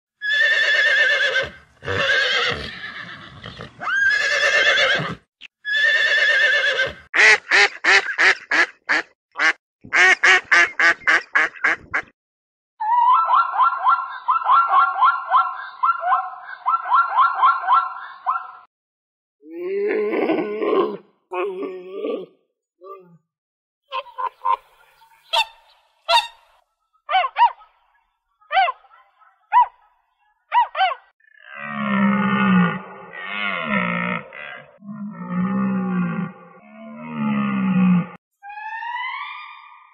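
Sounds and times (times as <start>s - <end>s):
horse whinnying: 0.2s - 7.1s
swan honking: 24.0s - 26.6s.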